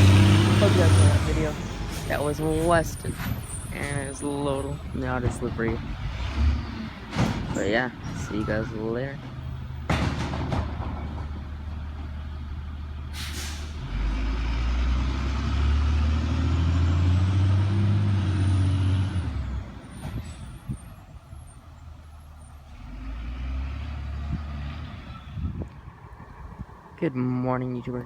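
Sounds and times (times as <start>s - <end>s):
truck engine revving: 0.0s - 27.0s
air brakes hissing: 13.1s - 13.8s.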